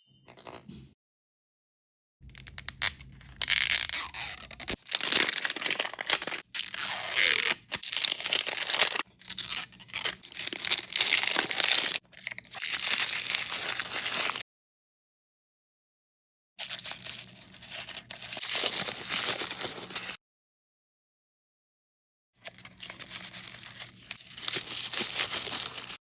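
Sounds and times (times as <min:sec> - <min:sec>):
packaging tearing and crinkling: 0:02.3 - 0:14.4, 0:16.6 - 0:20.2, 0:22.5 - 0:26.0.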